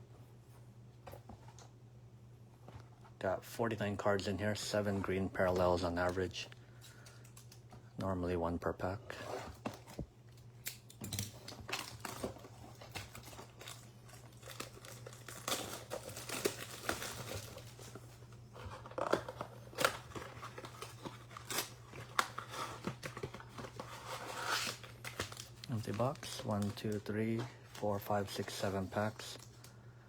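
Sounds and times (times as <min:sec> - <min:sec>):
low steady hum: 0:00.0 - 0:30.0
cardboard and foil packs handled: 0:09.1 - 0:30.0
shrink wrap crinkling and tearing: 0:10.6 - 0:29.8.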